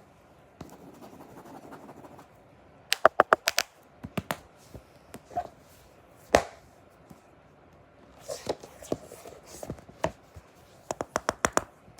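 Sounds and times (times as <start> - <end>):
sharp taps: 2.9 - 3.7.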